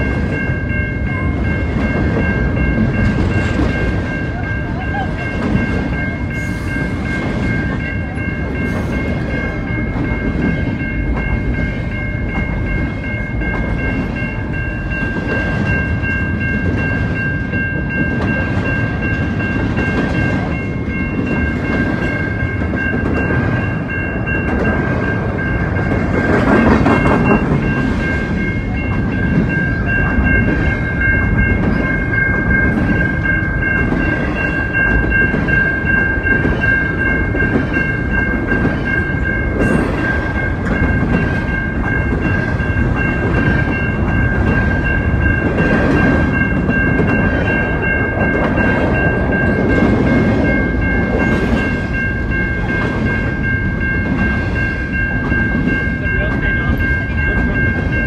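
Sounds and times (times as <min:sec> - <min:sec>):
freight train rolling past: 0:00.0 - 0:58.0
level crossing warning bell: 0:00.0 - 0:58.0.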